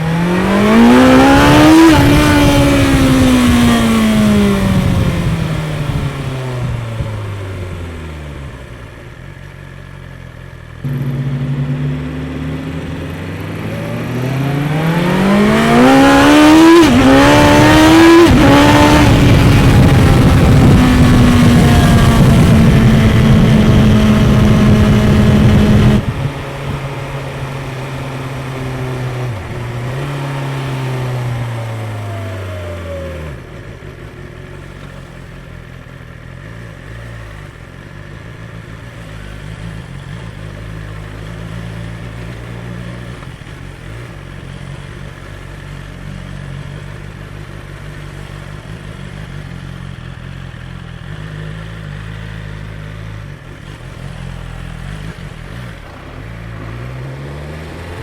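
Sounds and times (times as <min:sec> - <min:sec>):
motorcycle engine revving and idling: 0:00.0 - 0:58.0.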